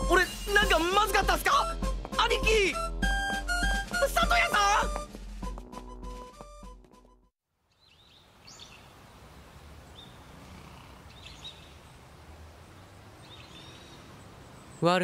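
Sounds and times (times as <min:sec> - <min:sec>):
light background music: 0:00.0 - 0:07.3
outdoor ambience: 0:04.1 - 0:15.0
small birds chirping: 0:07.7 - 0:15.0.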